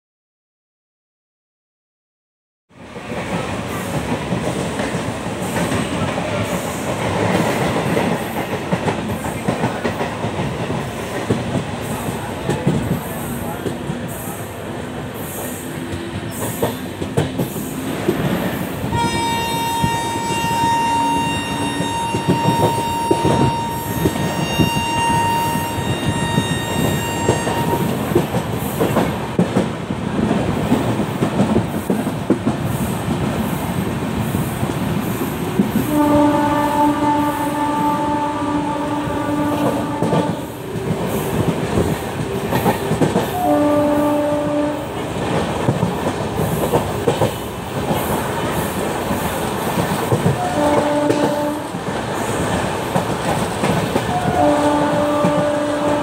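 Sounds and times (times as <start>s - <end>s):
train coaches rattling over rails: 2.9s - 56.0s
high train horn: 18.8s - 28.0s, 35.8s - 40.6s, 43.2s - 45.1s, 50.2s - 51.8s, 54.0s - 56.0s
low-pitched train horn: 18.8s - 28.0s, 35.8s - 40.7s, 43.2s - 45.1s, 50.2s - 51.8s, 54.0s - 56.0s.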